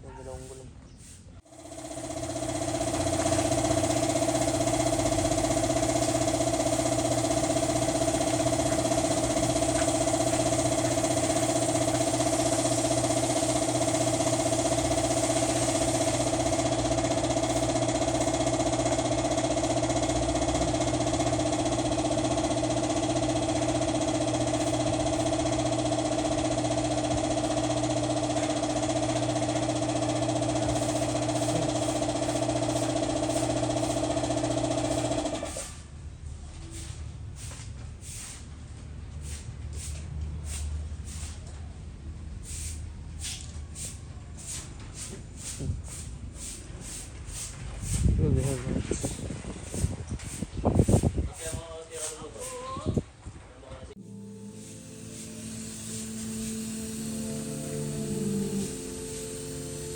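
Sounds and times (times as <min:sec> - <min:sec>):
motor-driven machine humming: 0:01.4 - 0:35.5, 0:53.9 - 0:59.9.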